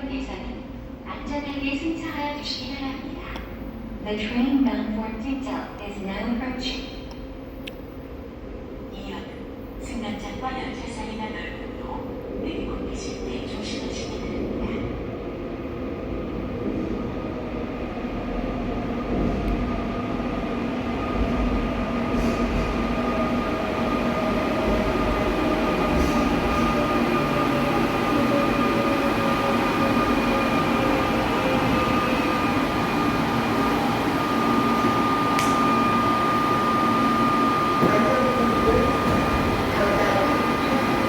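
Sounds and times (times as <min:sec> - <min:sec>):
electric subway train braking: 0:00.0 - 0:41.0
steady high tone: 0:30.0 - 0:41.0.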